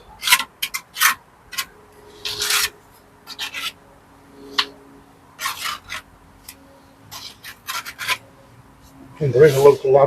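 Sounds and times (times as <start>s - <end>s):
trowel scraping mortar on stone: 0.2s - 3.8s, 5.4s - 6.1s, 7.1s - 8.2s.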